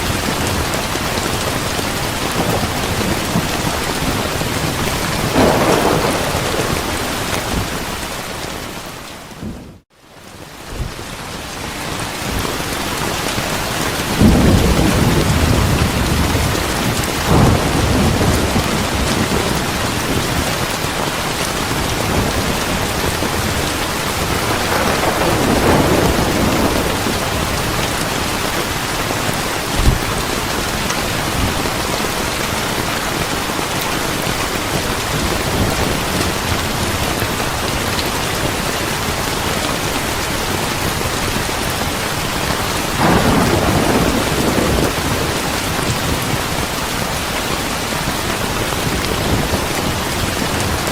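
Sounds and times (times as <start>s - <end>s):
heavy rain hissing: 0.0s - 9.8s, 10.4s - 50.9s
thunder rolling: 1.6s - 9.8s, 13.9s - 21.0s, 21.7s - 32.0s, 43.0s - 46.7s.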